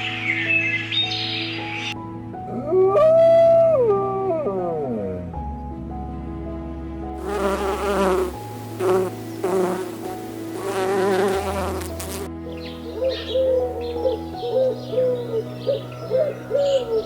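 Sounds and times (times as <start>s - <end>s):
background music with held chords: 0.0s - 17.0s
flying insect buzzing: 7.2s - 12.3s.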